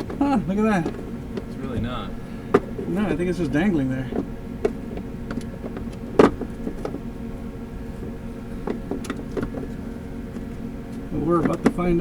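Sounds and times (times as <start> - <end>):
steady background hum: 0.0 - 12.0
knocks on plastic case: 0.8 - 2.9, 4.1 - 7.1.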